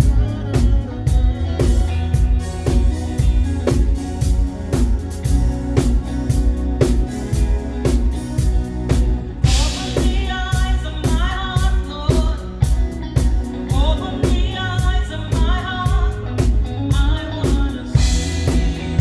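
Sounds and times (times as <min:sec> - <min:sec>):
bass: 0:00.0 - 0:19.0
drum kit beat: 0:00.0 - 0:19.0.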